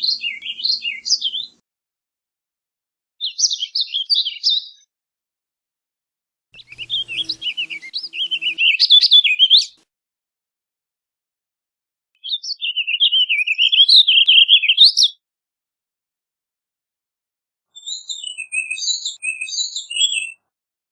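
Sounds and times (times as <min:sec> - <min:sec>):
bird singing warbling song: 0:00.0 - 0:01.6, 0:03.2 - 0:04.9, 0:06.6 - 0:09.8, 0:12.2 - 0:15.2, 0:17.7 - 0:20.5.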